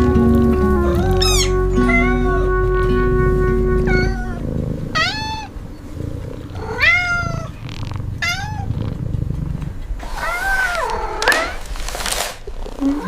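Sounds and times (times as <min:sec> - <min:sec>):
cat meowing: 0:00.8 - 0:02.5, 0:03.9 - 0:05.5, 0:06.5 - 0:07.6, 0:08.2 - 0:08.8, 0:10.0 - 0:11.8
cat purring: 0:03.4 - 0:13.0.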